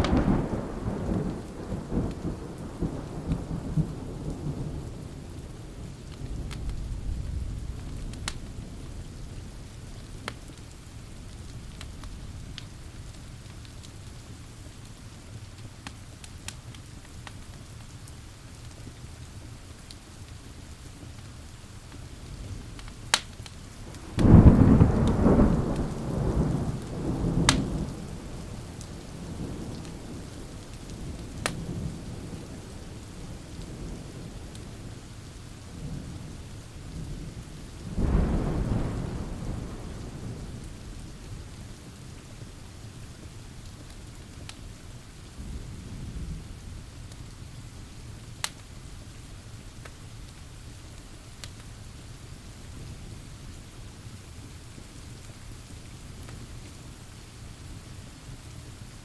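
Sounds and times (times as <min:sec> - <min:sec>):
thunder rumbling: 0:00.0 - 0:12.8, 0:22.2 - 0:42.5
steady rain: 0:00.0 - 0:59.0
wood fire crackling: 0:00.0 - 0:59.0.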